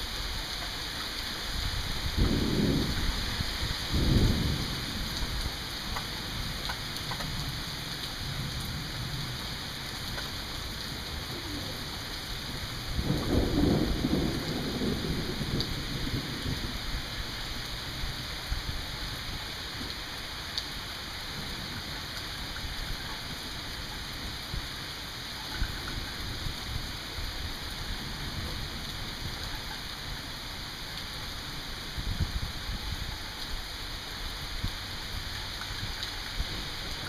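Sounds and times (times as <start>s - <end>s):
steady rain falling: 0.0s - 37.0s
low rumble of thunder: 1.6s - 19.5s, 25.6s - 30.4s.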